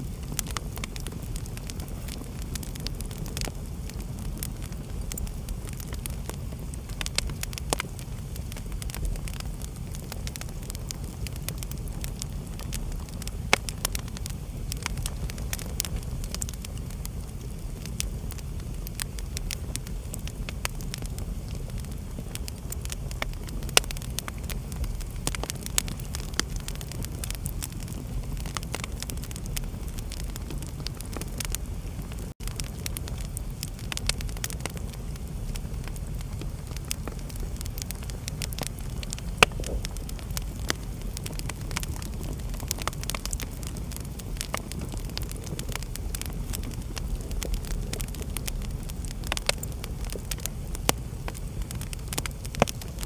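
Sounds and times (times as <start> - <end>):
steady low rumble: 0.0 - 53.0
wood fire crackling and popping: 0.0 - 53.0.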